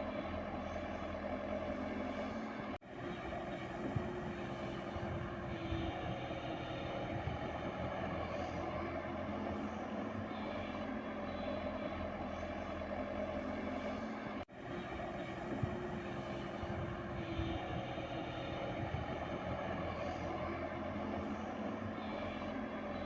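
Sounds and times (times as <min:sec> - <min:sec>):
excavator diesel engine running: 0:02.9 - 0:09.2, 0:14.5 - 0:21.3.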